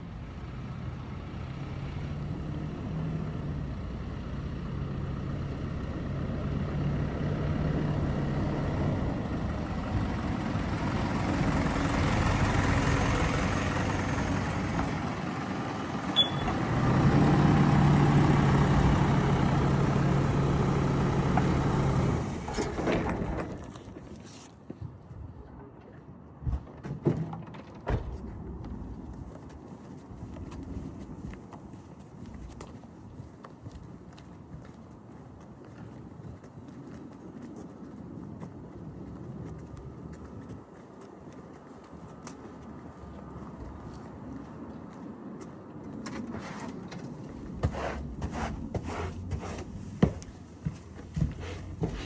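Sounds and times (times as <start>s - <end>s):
engine running: 0.0s - 23.7s.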